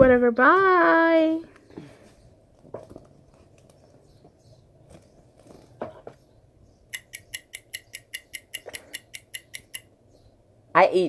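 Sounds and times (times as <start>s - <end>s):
soft clicks: 6.9s - 9.9s.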